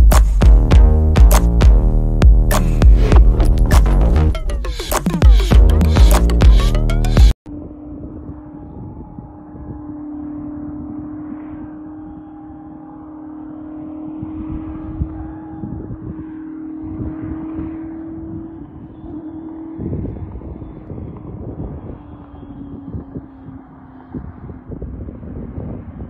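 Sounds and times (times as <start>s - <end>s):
car engine droning: 0.0s - 26.0s
wind buffeting microphone: 7.6s - 26.0s.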